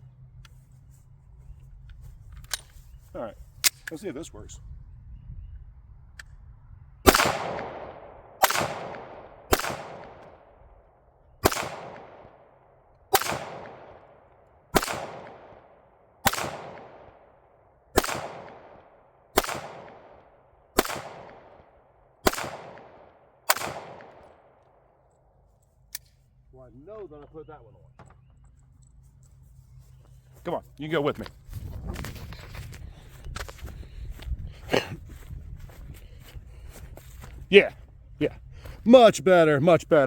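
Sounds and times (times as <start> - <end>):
echoing gunshots: 7.0 - 10.8, 11.4 - 25.0.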